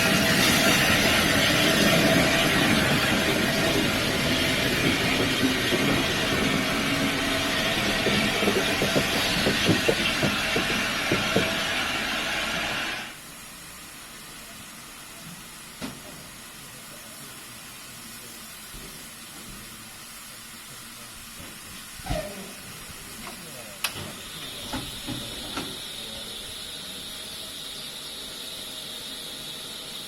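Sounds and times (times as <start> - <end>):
train passing: 0.0 - 13.2
steam hissing: 0.0 - 30.0.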